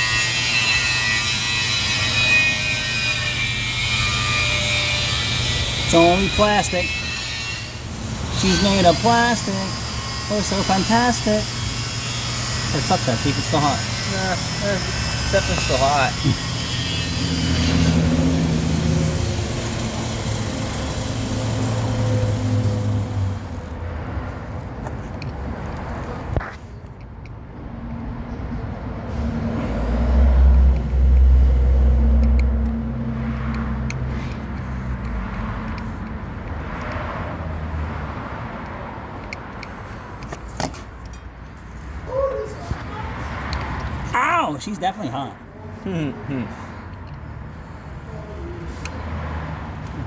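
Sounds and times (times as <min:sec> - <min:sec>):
vehicle engine passing: 0:28.8 - 0:40.3.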